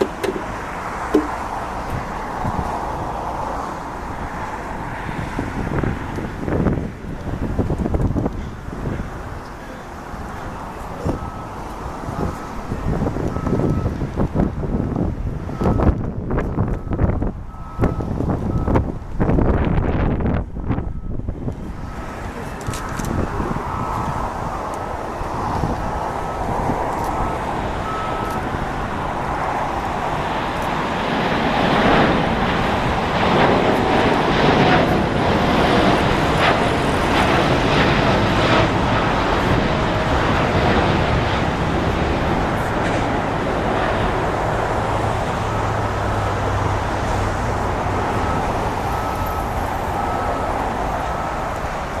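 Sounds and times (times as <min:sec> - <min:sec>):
jet engines at takeoff power: 0:00.0 - 0:52.0.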